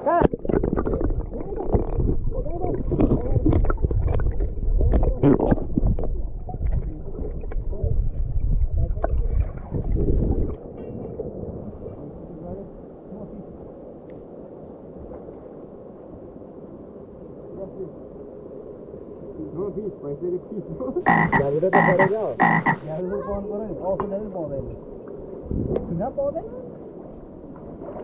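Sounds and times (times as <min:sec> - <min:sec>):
water sloshing and splashing: 0:00.2 - 0:07.8, 0:09.0 - 0:10.8, 0:27.0 - 0:28.0.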